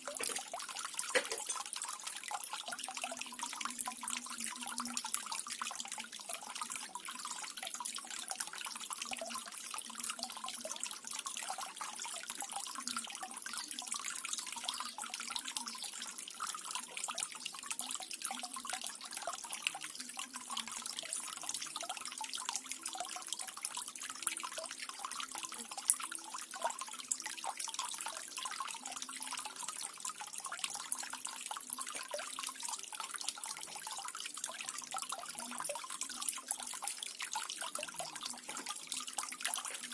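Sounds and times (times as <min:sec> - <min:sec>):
waterfall trickling and splashing: 0:00.0 - 0:05.0, 0:20.5 - 0:39.9.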